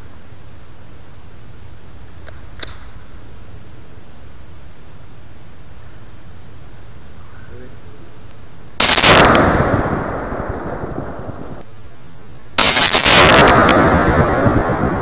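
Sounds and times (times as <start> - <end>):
propane cylinder explosions: 8.8 - 11.7, 12.6 - 15.0.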